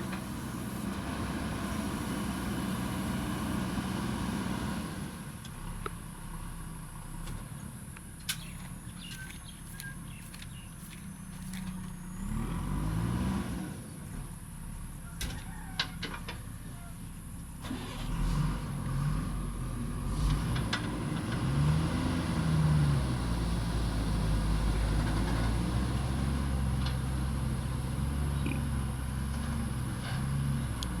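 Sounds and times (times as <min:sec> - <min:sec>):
heavy machinery diesel engine revving: 0:00.0 - 0:05.3, 0:12.0 - 0:14.3, 0:17.6 - 0:31.0.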